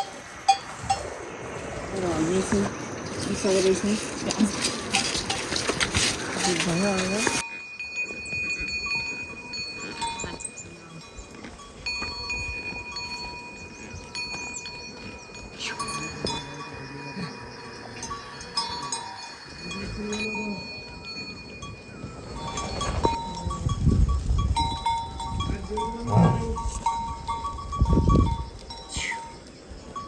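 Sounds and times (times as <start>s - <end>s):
livestock bells clinking: 0.0s - 1.2s, 1.9s - 30.0s.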